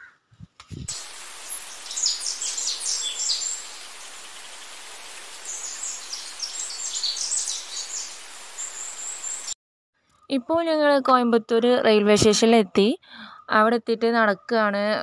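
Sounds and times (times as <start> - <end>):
steady outdoor hiss: 0.5 - 9.6
birds chirping: 0.9 - 9.6.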